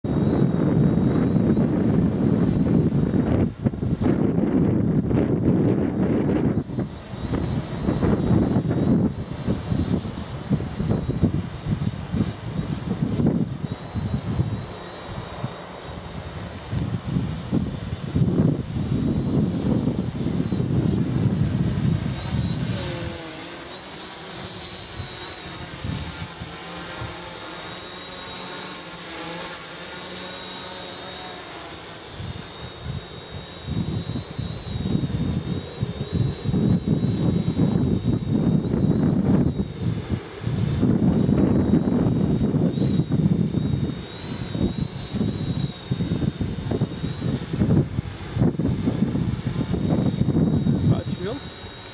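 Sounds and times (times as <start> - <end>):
wind buffeting on microphone: 0.0 - 27.4, 32.0 - 51.9
drone propellers buzzing: 0.0 - 51.9
quadcopter motors whining: 0.0 - 51.9.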